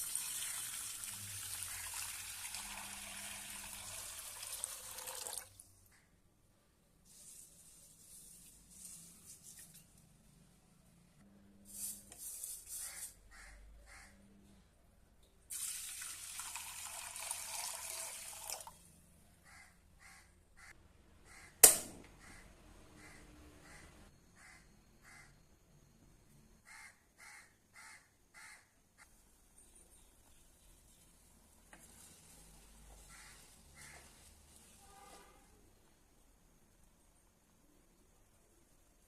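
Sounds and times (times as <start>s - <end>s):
water running: 0.0s - 5.6s.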